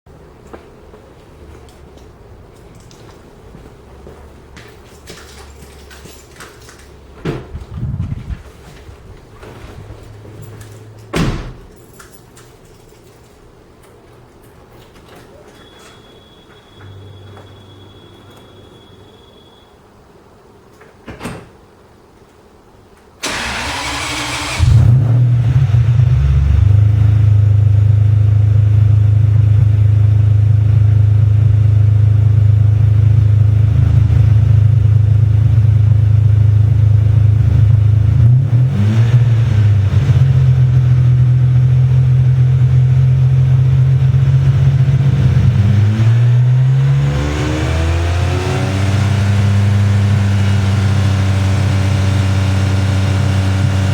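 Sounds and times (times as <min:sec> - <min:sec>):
starter motor cranking: 0:23.2 - 0:24.8.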